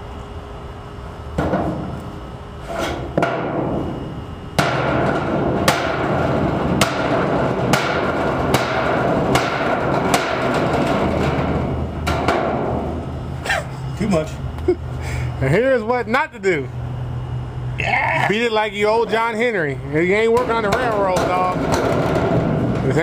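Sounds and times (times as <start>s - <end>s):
hammer striking sheet metal: 4.6s - 13.0s.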